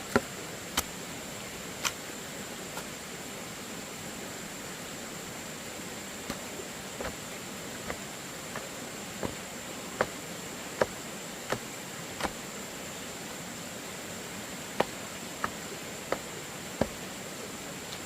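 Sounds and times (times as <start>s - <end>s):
high insect drone: 0.0s - 18.0s
tool knocking on bamboo: 10.8s - 11.6s, 14.8s - 16.2s.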